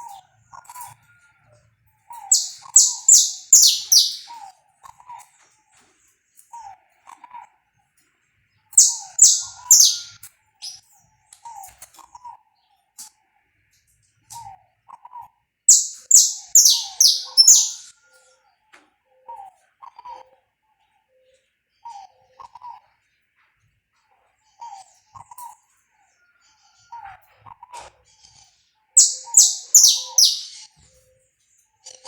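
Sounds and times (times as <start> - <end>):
soft lower chirps: 2.2 - 4.4, 8.8 - 10.8, 15.7 - 17.9, 29.0 - 30.7
finch singing high phrases: 2.3 - 4.4, 8.8 - 10.8, 15.7 - 17.9, 29.0 - 30.7.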